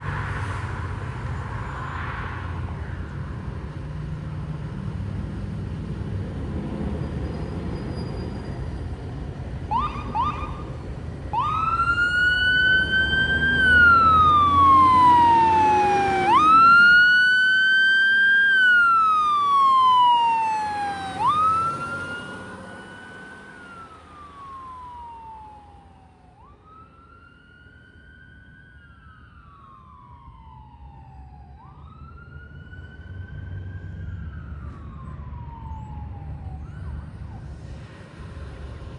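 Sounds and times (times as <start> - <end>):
fire engine siren wailing: 9.6 - 37.9.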